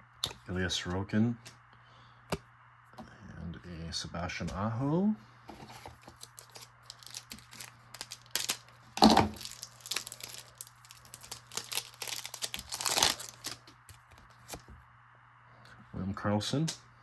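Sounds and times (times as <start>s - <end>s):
wrapper tearing and crinkling: 6.0s - 14.6s.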